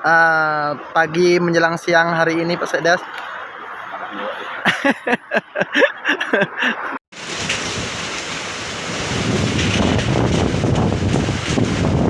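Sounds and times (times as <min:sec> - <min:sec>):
wind buffeting microphone: 0:07.2 - 0:12.0.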